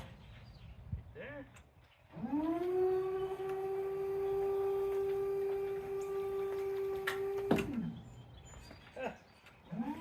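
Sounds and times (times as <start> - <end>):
electric motor whine: 2.1 - 8.0.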